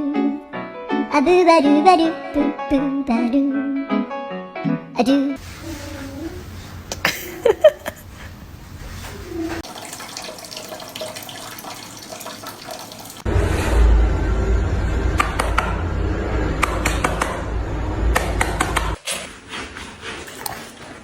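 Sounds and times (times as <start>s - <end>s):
tap water running: 5.4s - 13.3s
small knocks and splashes: 9.5s - 13.3s
heavy low rumble: 13.3s - 18.9s.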